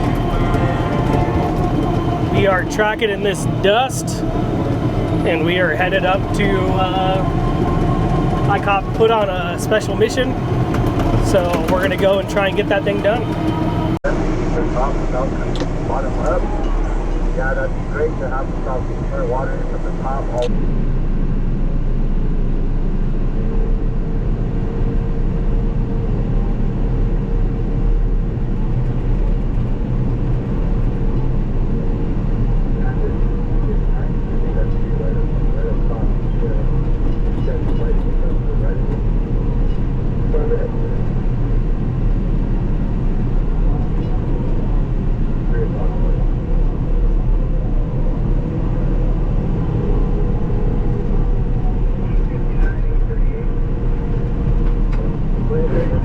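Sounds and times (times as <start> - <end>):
faint steady whine: 0.0 - 24.0
bulldozer diesel rumble: 0.0 - 26.8.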